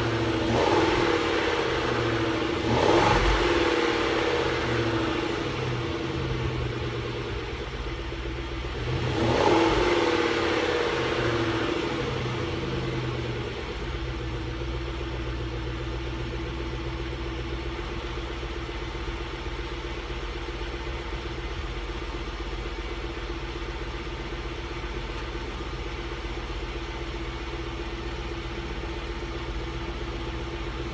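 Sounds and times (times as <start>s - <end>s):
car engine idling: 0.0s - 30.9s.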